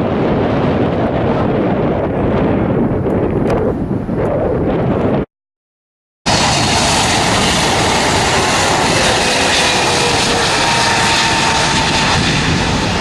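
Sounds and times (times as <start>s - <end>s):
jet engines passing: 6.3s - 13.0s.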